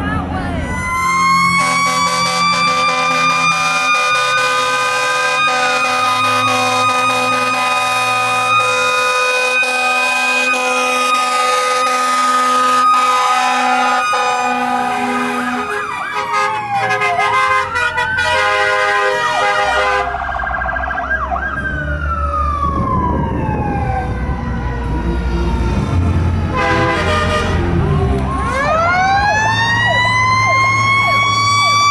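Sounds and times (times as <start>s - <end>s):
fire truck sirens wailing: 0.0s - 31.9s
truck engine rumble: 0.0s - 31.9s
air horns: 1.5s - 20.2s, 26.5s - 28.7s.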